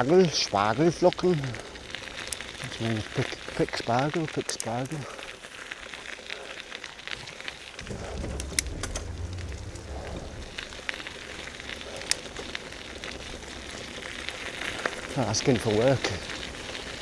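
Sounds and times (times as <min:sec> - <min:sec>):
bicycle rolling on rough path: 0:00.0 - 0:17.0
low wind rumble: 0:07.5 - 0:17.0
sharp clicks and knocks: 0:07.8 - 0:10.6.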